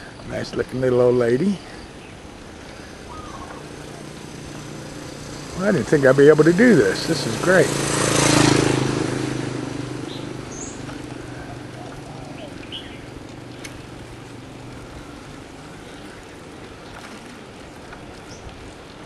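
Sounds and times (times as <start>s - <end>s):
street noise: 0.0s - 19.0s
motor vehicle engine passing: 2.2s - 18.9s
bird chirps: 3.0s - 4.0s, 10.0s - 13.2s.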